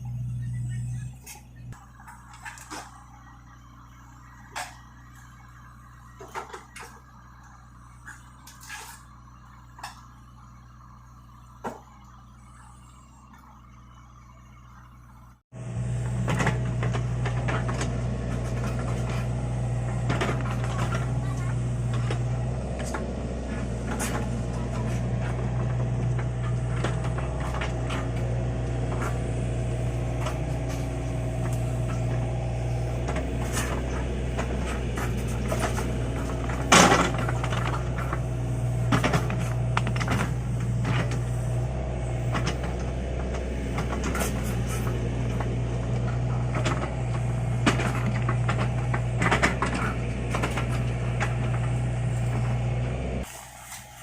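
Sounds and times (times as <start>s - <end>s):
excavator diesel engine running: 0.0s - 54.0s
machine clanks and knocks: 30.1s - 41.3s.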